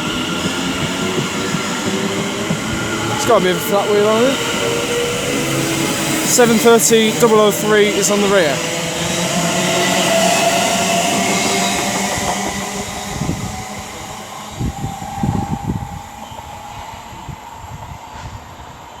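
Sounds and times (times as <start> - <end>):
electric train motor whine: 0.0 - 18.4
train wheel noise: 0.0 - 19.0.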